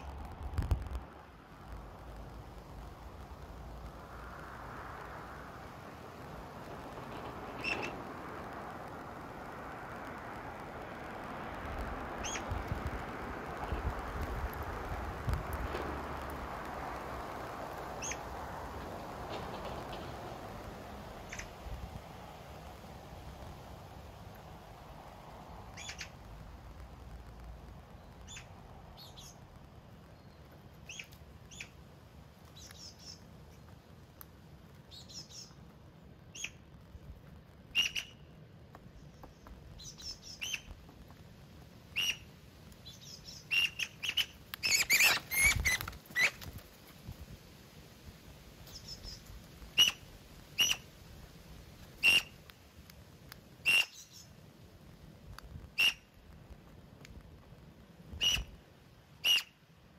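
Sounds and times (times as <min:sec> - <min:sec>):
birds chirping at a feeder: 0:42.8 - 0:46.3, 0:48.6 - 0:50.8.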